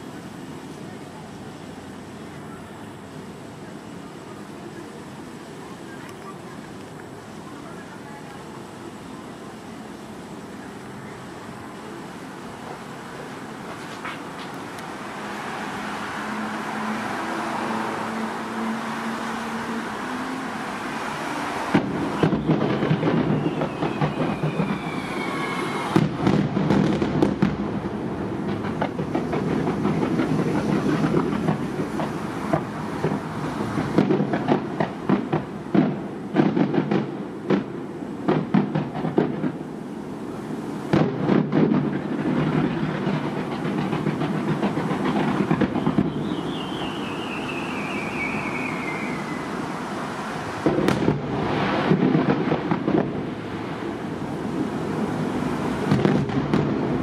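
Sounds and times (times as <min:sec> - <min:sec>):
fireworks bursting: 0:00.0 - 0:57.0
whistling firework tone: 0:14.1 - 0:27.4, 0:42.4 - 0:51.3.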